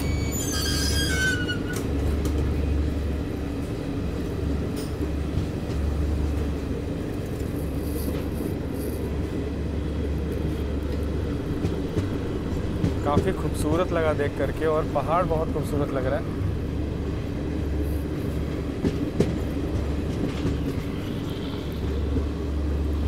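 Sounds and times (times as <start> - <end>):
high falling squeal: 0.0 - 1.8
train wheels rumbling: 0.0 - 23.0.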